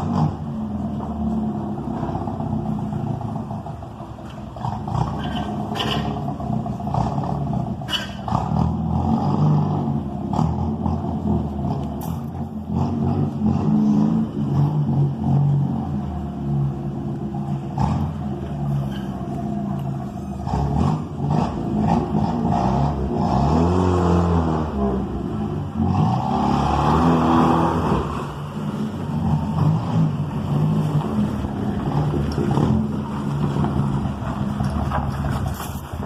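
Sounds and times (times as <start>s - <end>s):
loud engine revving without muffler: 4.6s - 16.7s, 20.4s - 33.9s.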